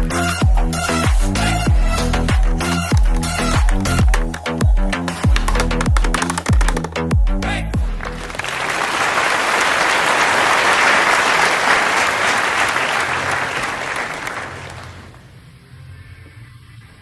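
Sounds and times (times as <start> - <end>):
electronic music with bass drop: 0.0 - 8.4
applause: 7.8 - 15.3.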